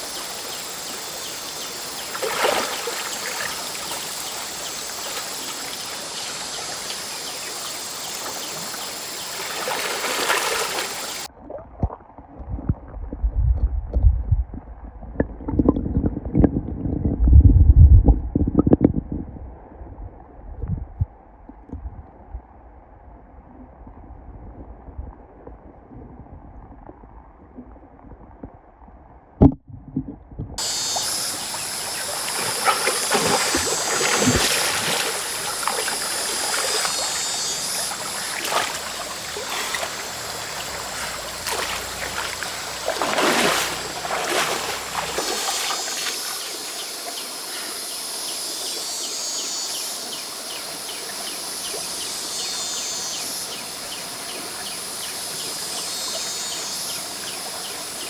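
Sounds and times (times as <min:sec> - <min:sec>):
insects buzzing: 0:00.0 - 0:11.3, 0:30.6 - 0:58.0
stream water running: 0:00.0 - 0:11.3, 0:30.6 - 0:58.0.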